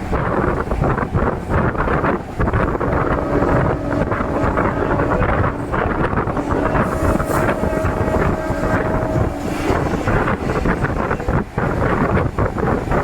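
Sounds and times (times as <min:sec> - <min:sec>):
rushing wind: 0:00.0 - 0:13.0
train wheels rumbling on track: 0:00.0 - 0:13.0
steady hum: 0:02.4 - 0:11.5.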